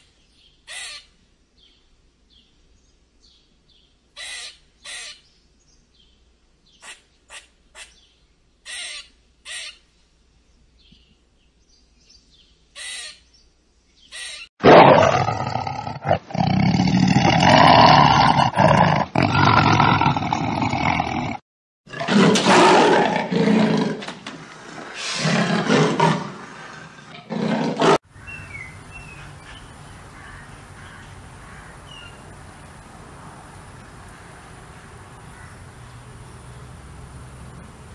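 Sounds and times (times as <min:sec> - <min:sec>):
lion roaring: 0:14.6 - 0:24.2, 0:25.0 - 0:28.0
faint chirps: 0:28.1 - 0:37.9.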